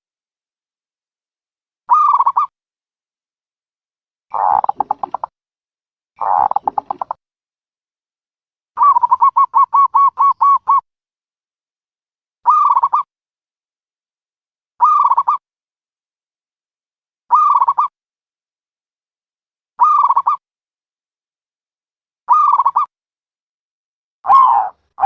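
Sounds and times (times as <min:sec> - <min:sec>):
dove cooing: 0:04.3 - 0:05.3, 0:06.2 - 0:07.1, 0:08.8 - 0:10.8, 0:24.3 - 0:24.7.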